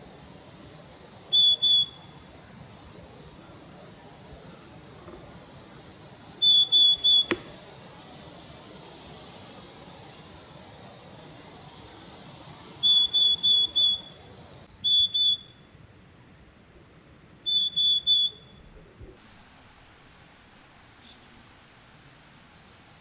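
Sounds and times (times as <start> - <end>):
bird singing whistled notes: 0.0 - 2.2, 4.2 - 8.3, 11.9 - 16.0, 16.7 - 18.7.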